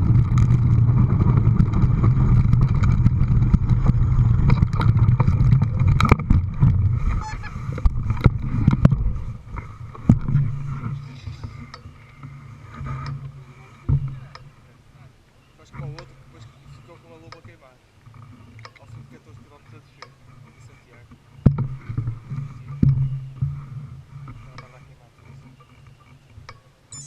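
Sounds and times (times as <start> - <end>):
engine droning: 0.0 - 26.9.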